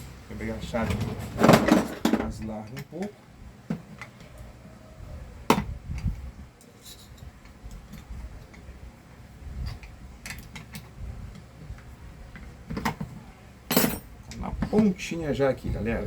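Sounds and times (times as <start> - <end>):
metal tools clicking and tapping: 2.2 - 3.1.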